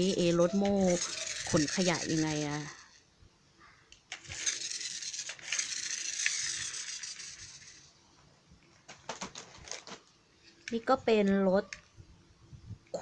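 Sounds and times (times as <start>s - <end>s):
plastic rubbing and scraping: 0.0s - 3.0s, 4.1s - 7.9s, 8.7s - 10.7s.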